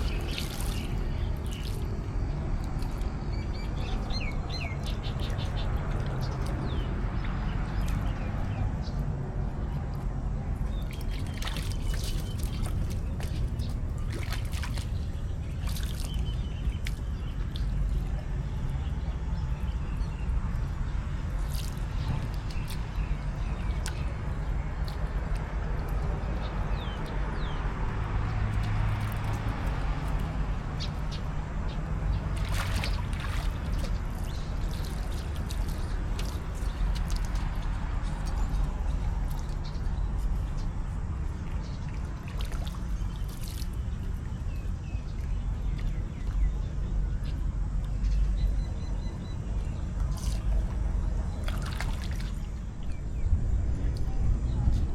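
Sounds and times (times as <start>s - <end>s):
water splashing: 0.0s - 9.0s, 10.6s - 18.9s, 21.1s - 47.4s, 49.6s - 53.0s
low rumble: 49.5s - 54.9s.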